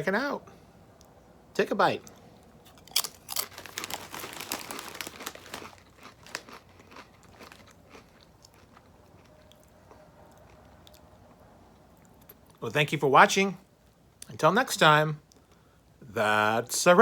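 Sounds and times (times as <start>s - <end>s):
person crunching chips: 2.7s - 9.7s.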